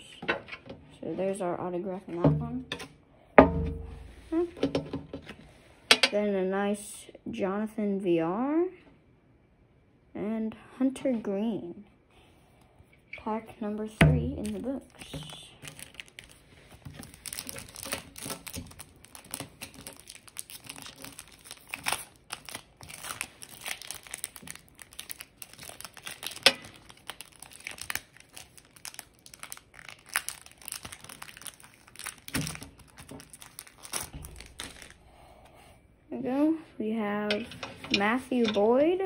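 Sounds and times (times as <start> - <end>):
wrapper crinkling and tearing: 14.5 - 35.0.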